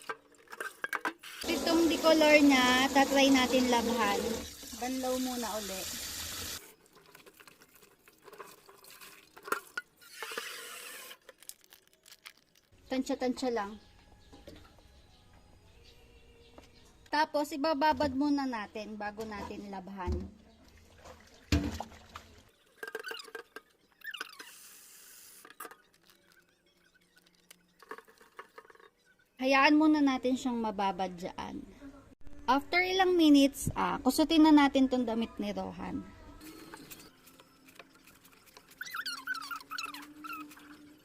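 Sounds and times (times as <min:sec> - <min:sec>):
tap water running: 0:01.3 - 0:11.0
water sloshing and dripping: 0:03.4 - 0:09.9, 0:20.5 - 0:23.6
small water splashes: 0:20.6 - 0:22.6
squeaky chirps of wet clothes: 0:22.6 - 0:27.9, 0:36.5 - 0:41.0.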